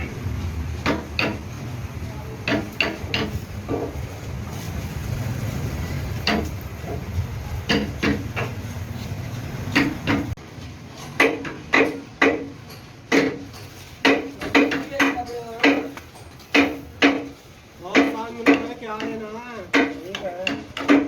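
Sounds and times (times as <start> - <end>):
tools striking hard workpiece: 0.8 - 1.6, 2.4 - 4.0, 6.2 - 7.0, 7.7 - 8.6, 9.7 - 10.4, 11.0 - 21.0.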